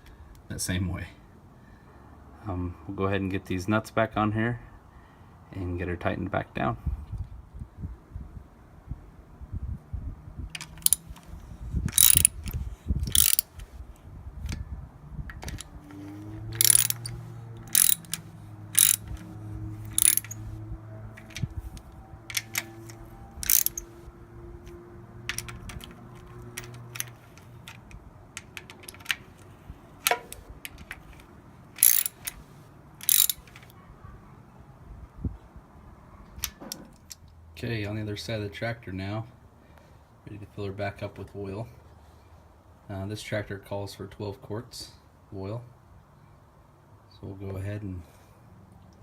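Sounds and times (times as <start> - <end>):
ratchet wrench clicking: 10.5 - 11.2, 11.9 - 13.5, 16.5 - 20.5, 21.2 - 23.9, 25.3 - 29.2, 31.8 - 32.4, 33.0 - 33.7.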